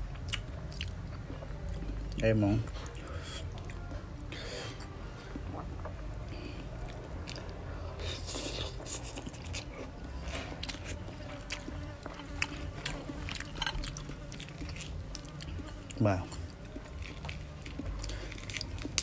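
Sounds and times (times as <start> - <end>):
chewing with mouth clicks and crunches: 0.1 - 4.0, 4.8 - 19.0.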